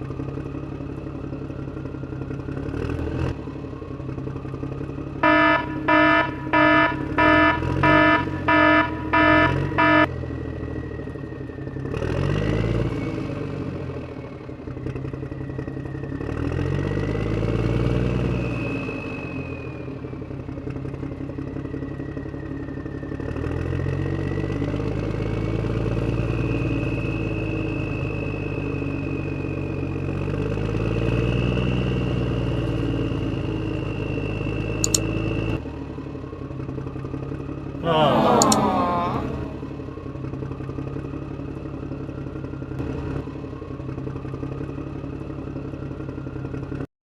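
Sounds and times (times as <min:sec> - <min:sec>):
truck engine revving with whine: 0:00.0 - 0:46.8
truck short beeps: 0:05.2 - 0:10.1.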